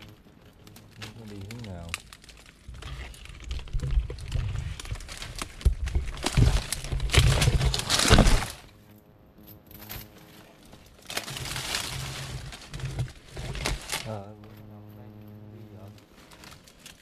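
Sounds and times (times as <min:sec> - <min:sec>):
twigs and leaves crackling underfoot: 0:00.0 - 0:17.0
soft rustling: 0:10.1 - 0:17.0.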